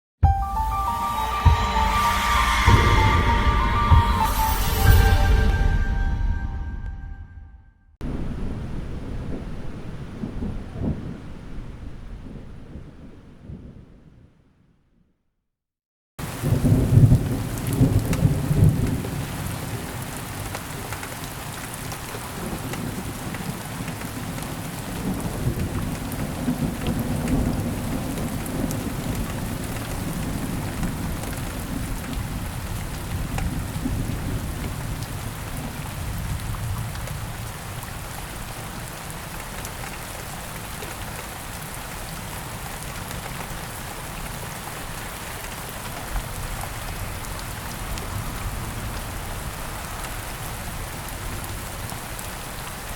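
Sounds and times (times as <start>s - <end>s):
thunder rumbling: 1.4s - 14.3s, 16.2s - 20.8s, 22.0s - 38.9s
steady rain falling: 8.0s - 14.3s, 16.2s - 52.9s.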